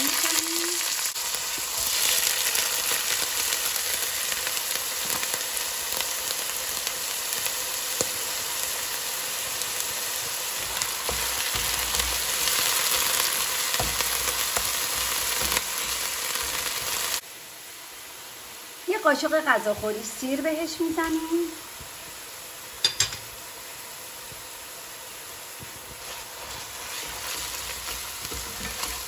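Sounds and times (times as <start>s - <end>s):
onion sizzling in hot oil: 0.0s - 29.0s
spatula stirring: 10.2s - 17.0s, 25.6s - 29.0s.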